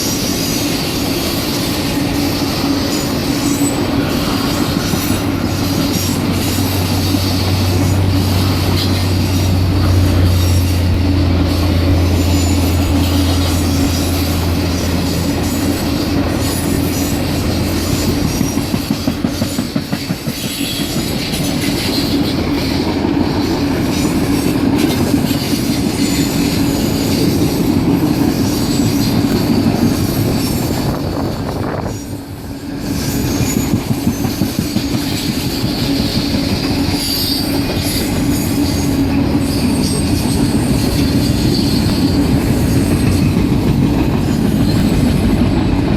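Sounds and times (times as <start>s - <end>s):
wheel squeal: 0.0s - 45.6s
train wheels clattering over joints: 0.0s - 45.9s.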